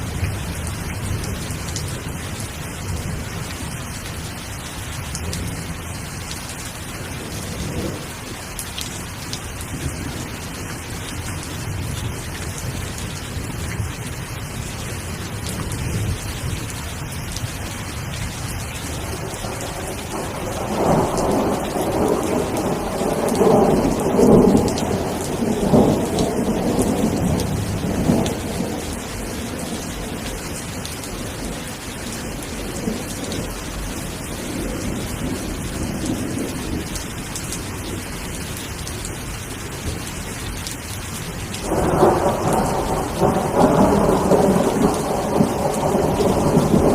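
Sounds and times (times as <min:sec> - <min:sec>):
steady rain: 0:00.0 - 0:46.9
rolling thunder: 0:18.9 - 0:36.9, 0:41.6 - 0:46.9.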